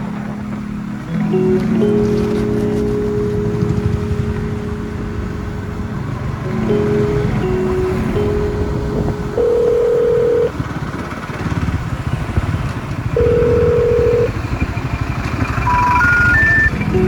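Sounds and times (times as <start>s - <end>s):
motorcycle running: 0.0s - 17.0s
wind rumble: 0.0s - 17.0s
electronic beep tones: 13.2s - 14.7s, 15.4s - 17.0s.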